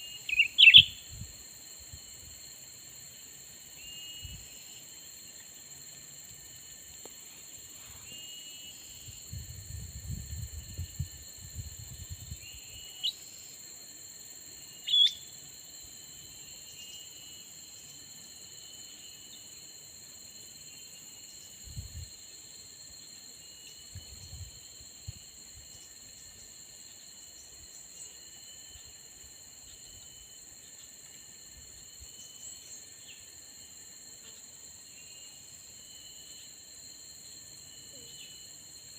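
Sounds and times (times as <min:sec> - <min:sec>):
small birds calling: 0:00.0 - 0:01.0
high-pitched insect drone: 0:00.0 - 0:38.9
low rumbles of handling or wind: 0:09.1 - 0:12.5.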